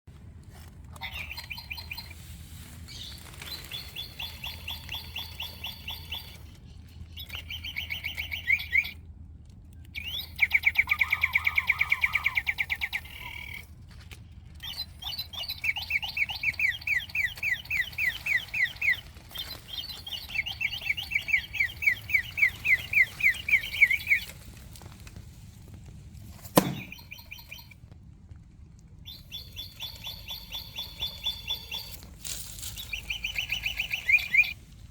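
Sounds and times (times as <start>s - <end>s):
electronic bird chirps: 1.0s - 2.2s, 3.0s - 9.0s, 10.0s - 13.7s, 14.6s - 24.3s, 26.6s - 27.8s, 29.1s - 34.6s
sharp click: 26.5s - 27.0s.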